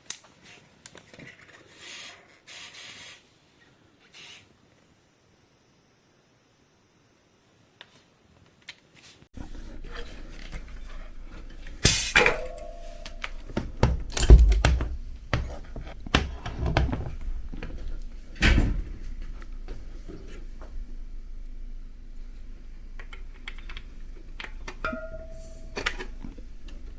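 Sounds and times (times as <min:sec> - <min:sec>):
low steady hum: 0:09.4 - 0:26.9
metal clanks: 0:09.6 - 0:26.9
tools and bicycle parts clicking: 0:11.4 - 0:17.6.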